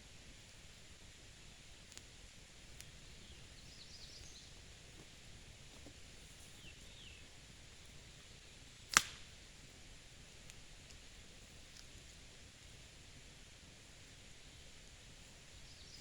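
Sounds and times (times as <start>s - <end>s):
bird chirps: 3.2s - 4.6s
sharp click: 8.9s - 9.2s.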